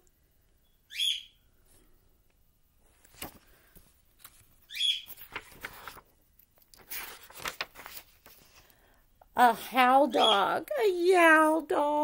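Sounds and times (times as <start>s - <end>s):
book page turning: 2.9s - 8.8s.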